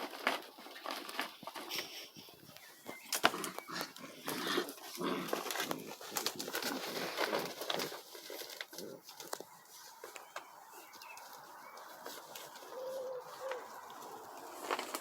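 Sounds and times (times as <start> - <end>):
bird calling softly: 2.2 - 4.3, 9.0 - 14.9.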